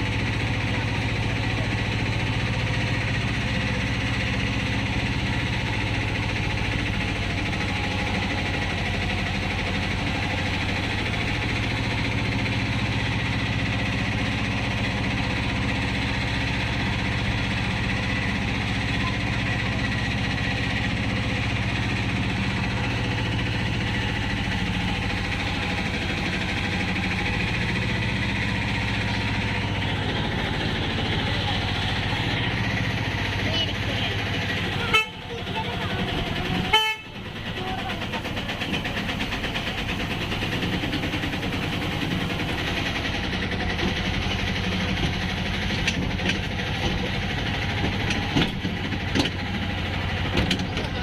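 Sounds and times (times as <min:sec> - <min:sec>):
train hum and rumble: 0:00.0 - 0:51.0.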